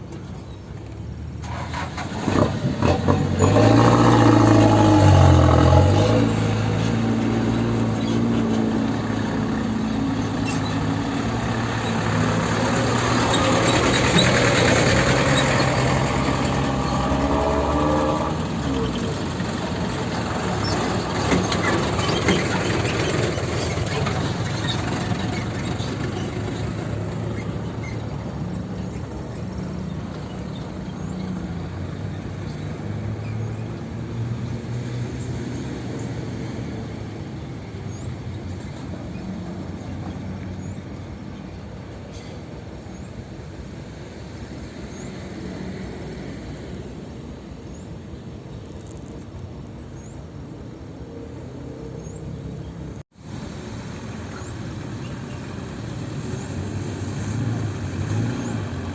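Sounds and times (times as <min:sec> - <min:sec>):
diesel engine running: 0:01.3 - 0:32.4.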